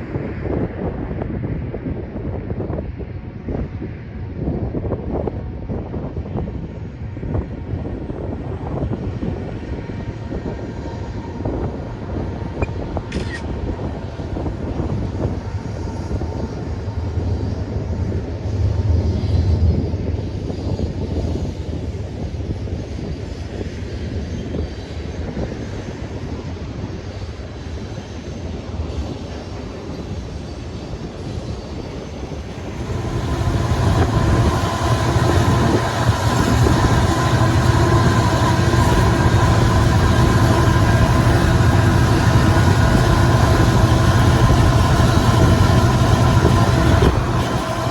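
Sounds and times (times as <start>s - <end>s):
train wheels rumbling on rail: 0.0s - 47.9s
steady tones: 31.8s - 47.9s.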